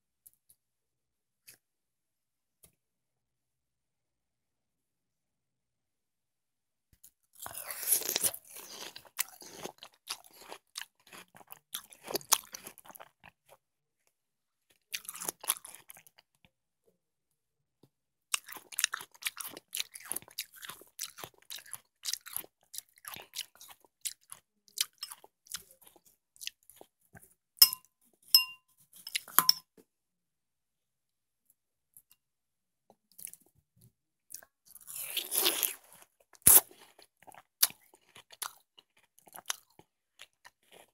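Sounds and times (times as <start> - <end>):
crunching watermelon bites: 7.4 - 13.3
crunchy chewing: 7.4 - 13.6, 14.7 - 16.3, 18.3 - 27.4, 34.3 - 40.9.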